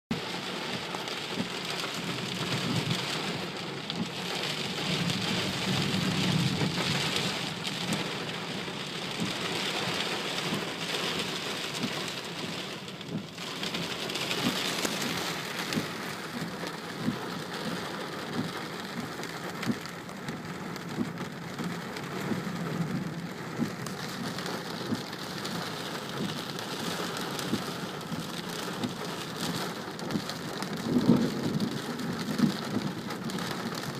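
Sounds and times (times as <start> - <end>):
heavy rain falling: 0.1 - 33.9
rumble of thunder: 4.0 - 9.9, 14.4 - 33.9.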